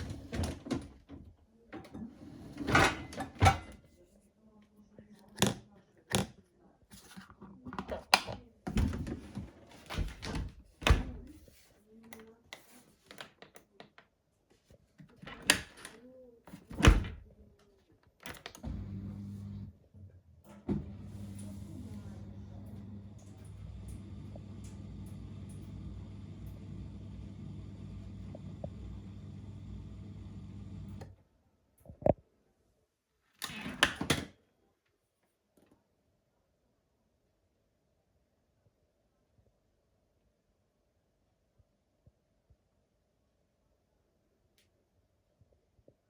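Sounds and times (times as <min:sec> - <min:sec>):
dishwasher pump humming: 0:18.6 - 0:19.7, 0:20.6 - 0:31.1.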